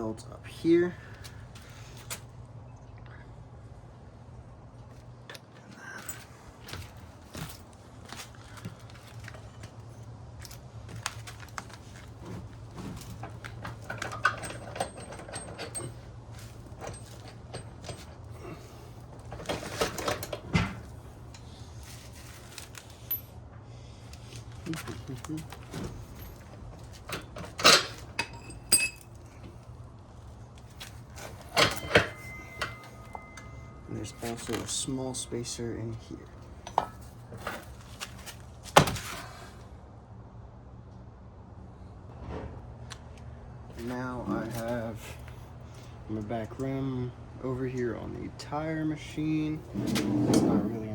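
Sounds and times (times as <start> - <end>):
steady low hum: 0.0 - 50.9
metal parts clunking: 10.5 - 23.3, 24.6 - 29.6, 30.7 - 35.1, 36.4 - 39.0
metal parts clinking: 13.0 - 23.3, 24.8 - 29.4, 31.1 - 35.0
metallic clinks of tools: 27.6 - 29.1, 31.6 - 34.8.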